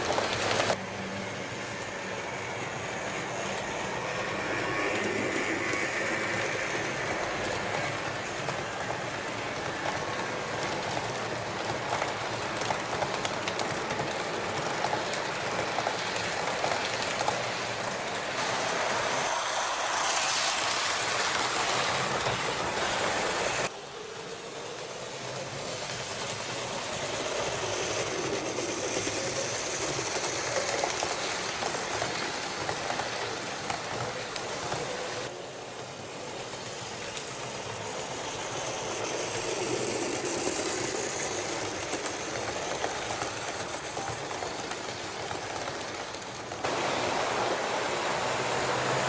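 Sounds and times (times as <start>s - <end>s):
model train wheel rumble: 0.0s - 49.0s
model train motor whine: 0.5s - 11.1s, 24.4s - 35.2s, 36.4s - 45.6s, 46.7s - 49.0s.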